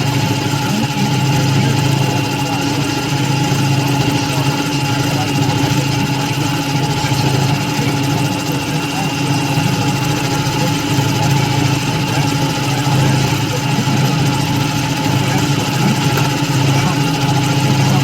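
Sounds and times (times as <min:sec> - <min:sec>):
machine tool humming: 0:00.0 - 0:18.0.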